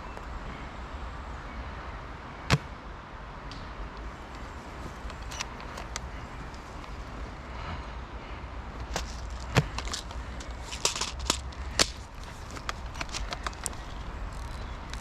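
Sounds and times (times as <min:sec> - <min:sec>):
sharp clicks and cracks: 0:08.8 - 0:15.0.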